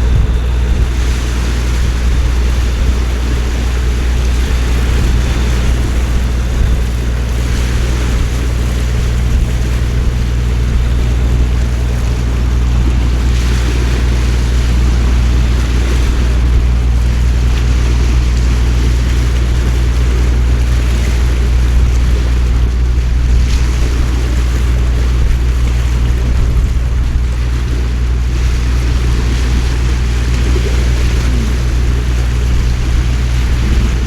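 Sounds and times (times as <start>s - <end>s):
low rumble: 0.0s - 34.0s
heavy rain pouring: 28.2s - 34.0s.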